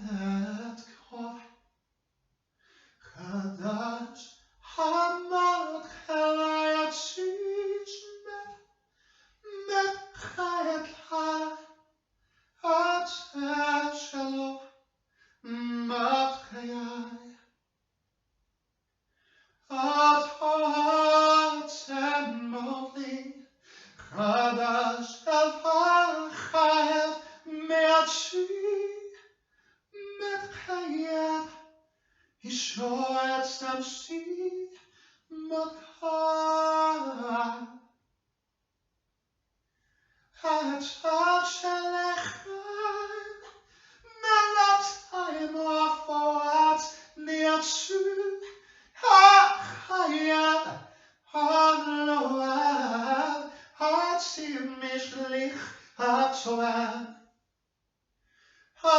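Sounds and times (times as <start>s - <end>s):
person singing unaccompanied: 3.2s - 8.6s, 9.4s - 11.6s, 12.6s - 14.6s, 19.7s - 23.3s, 24.0s - 29.2s, 30.0s - 31.6s, 35.3s - 37.7s, 40.4s - 43.5s, 44.1s - 57.1s.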